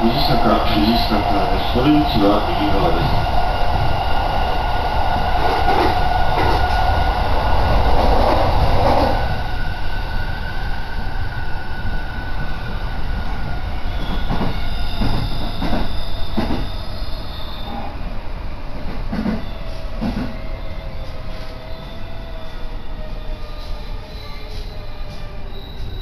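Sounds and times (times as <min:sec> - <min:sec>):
train rumbling: 0:00.0 - 0:26.0
train wheels knocking: 0:14.1 - 0:16.7.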